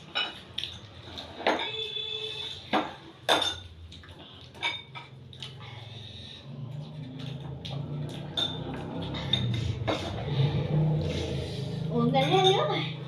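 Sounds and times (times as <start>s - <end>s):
utensils clinking against dishes: 0.0s - 5.6s, 6.7s - 11.1s, 11.8s - 13.0s.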